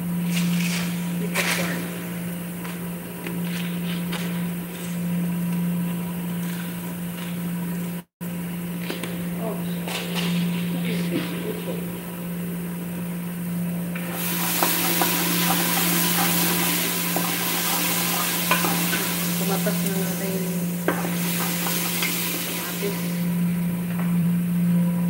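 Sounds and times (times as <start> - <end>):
steady low hum: 0.0 - 25.0
spices sizzling in hot oil: 14.0 - 23.9
utensil scraping a metal pot: 14.2 - 20.1.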